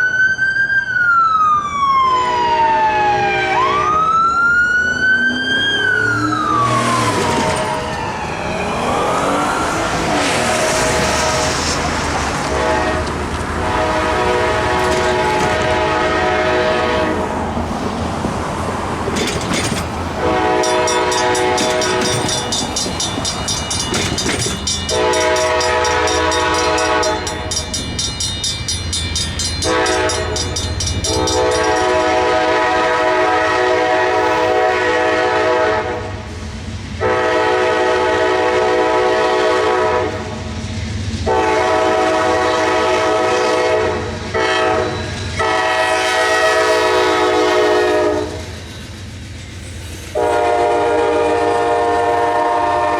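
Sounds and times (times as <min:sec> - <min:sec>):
locomotive air horn blasts: 0:03.4 - 0:04.1, 0:10.4 - 0:17.4, 0:20.2 - 0:22.6, 0:24.9 - 0:27.6, 0:29.6 - 0:36.2, 0:37.0 - 0:40.4, 0:41.2 - 0:48.4, 0:50.2 - 0:52.9
crossing bell ringing: 0:19.2 - 0:32.8.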